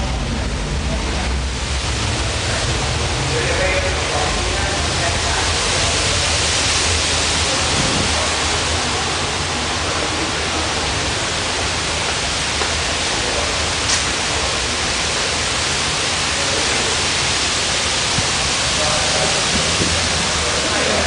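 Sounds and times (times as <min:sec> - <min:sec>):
strong wind rushing: 0:00.0 - 0:09.8, 0:17.6 - 0:21.0
wind buffeting microphone: 0:07.4 - 0:08.6, 0:18.1 - 0:20.6.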